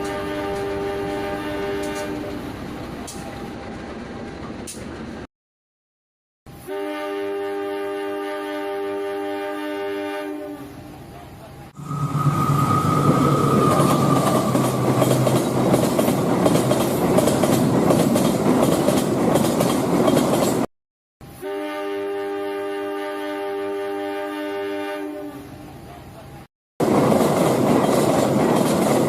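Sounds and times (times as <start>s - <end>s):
multi-tone train horn: 0.0s - 2.5s, 6.5s - 15.3s, 21.3s - 26.3s
train rumbling and rattling: 0.0s - 5.3s, 11.1s - 20.7s, 25.6s - 29.0s
high whine: 11.8s - 15.6s.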